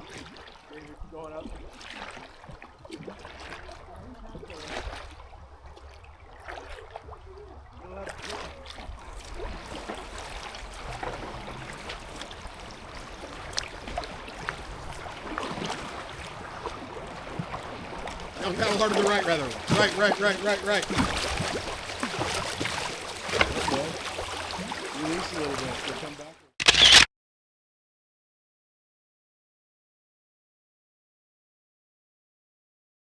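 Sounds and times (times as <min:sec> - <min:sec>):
paddle strokes splashing water: 0:00.0 - 0:26.5
rush of moving water: 0:00.0 - 0:26.5.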